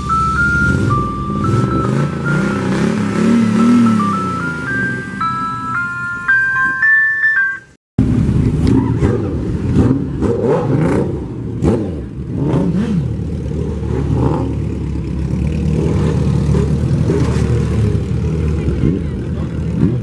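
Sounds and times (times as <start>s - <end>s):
car engine revving: 0.0s - 6.0s, 8.0s - 20.0s
bell-like mallet melody: 0.0s - 7.8s.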